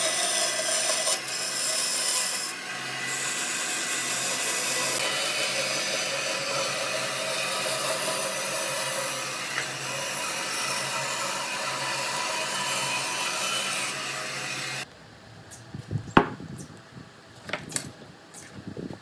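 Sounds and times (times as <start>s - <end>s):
power tool rasping wood: 0.0s - 14.8s.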